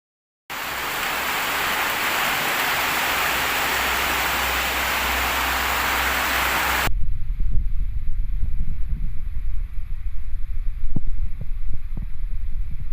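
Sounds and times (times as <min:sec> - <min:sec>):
heavy rain hissing: 0:00.5 - 0:06.9
gusty wind buffeting microphone: 0:00.6 - 0:12.9.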